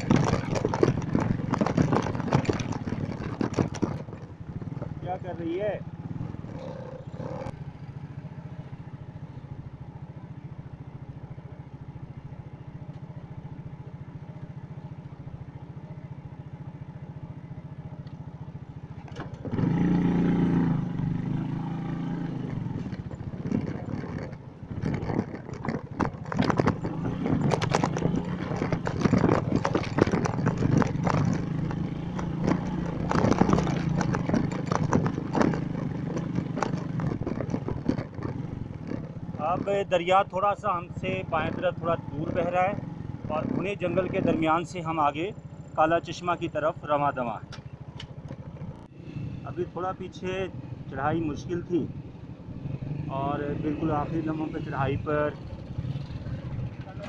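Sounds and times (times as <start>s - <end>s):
stones clattering and knocking: 0.0s - 5.0s, 22.5s - 39.8s
motorcycle engine: 0.0s - 57.0s.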